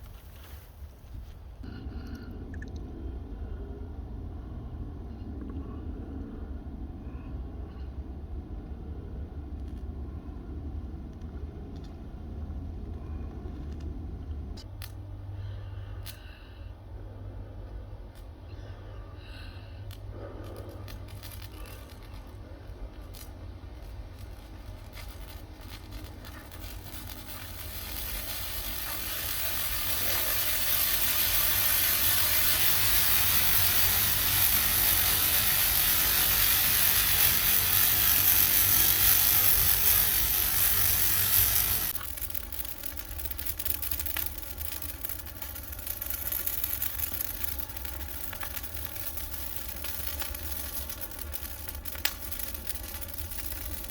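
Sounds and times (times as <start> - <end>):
fire crackling: 0.0 - 1.7, 16.0 - 53.9
rushing hiss of burning: 19.1 - 53.9.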